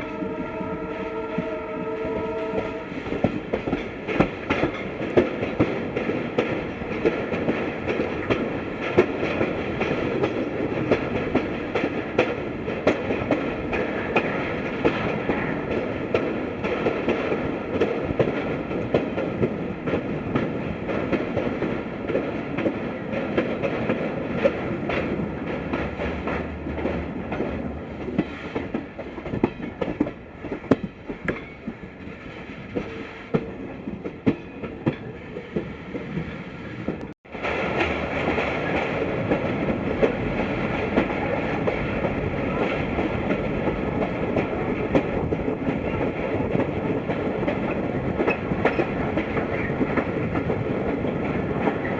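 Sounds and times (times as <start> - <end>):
train rumble: 0.0 - 51.9
wheels clicking over rail joints: 3.0 - 51.9.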